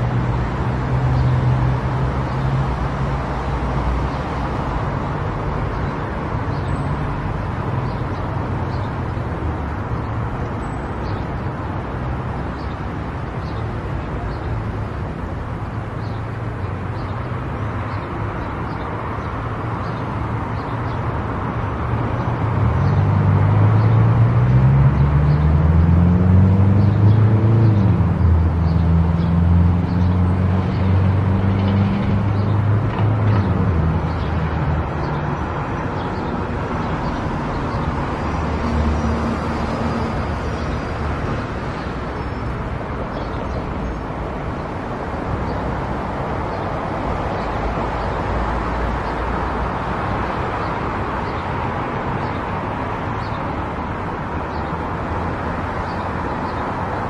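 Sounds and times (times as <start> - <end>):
road and tyre noise: 0.0 - 57.0
car engine climbing in pitch: 22.4 - 35.4.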